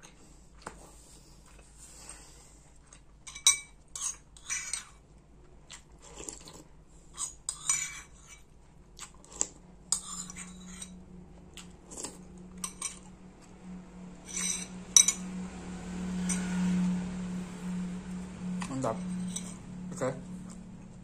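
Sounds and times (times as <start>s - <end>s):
person chewing and crunching: 0.0s - 13.6s
spoon scraping a bowl: 3.3s - 5.0s, 7.1s - 8.6s, 9.3s - 11.0s, 11.9s - 13.2s, 14.2s - 15.3s, 18.9s - 19.7s.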